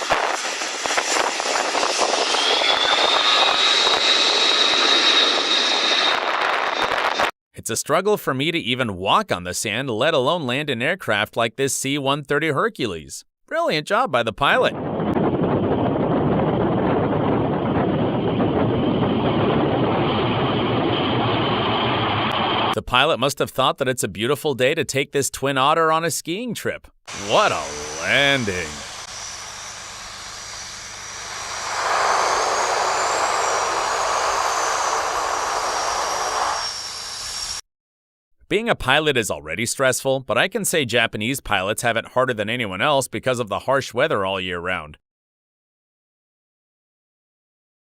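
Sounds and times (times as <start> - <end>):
aircraft engines roaring: 0.0 - 7.3, 14.8 - 22.8, 27.1 - 37.6
high whine: 0.0 - 7.3, 14.7 - 22.8, 27.1 - 37.6.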